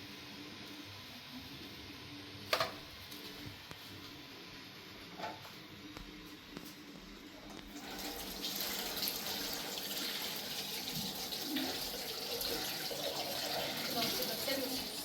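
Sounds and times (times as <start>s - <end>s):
water running: 7.2s - 15.0s.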